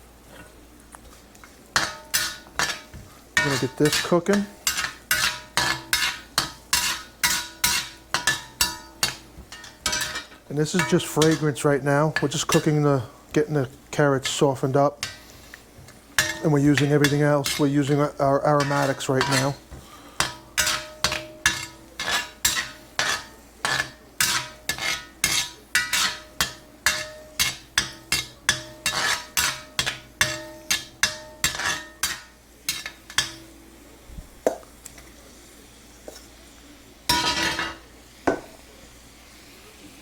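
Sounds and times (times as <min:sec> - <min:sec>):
metal utensil clinking in frying pan: 0:01.8 - 0:12.8, 0:14.2 - 0:15.3, 0:16.1 - 0:33.6, 0:37.1 - 0:38.4.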